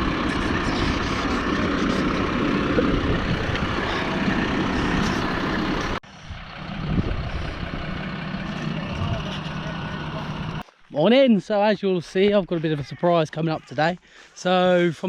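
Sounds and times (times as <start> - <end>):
tractor engine running: 0.0 - 10.7.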